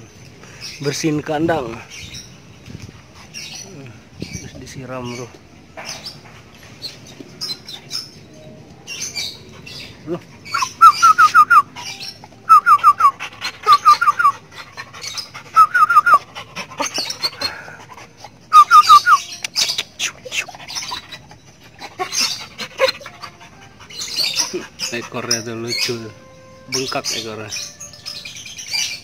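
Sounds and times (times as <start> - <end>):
high chirps: 10.5 - 14.4, 18.5 - 21.4.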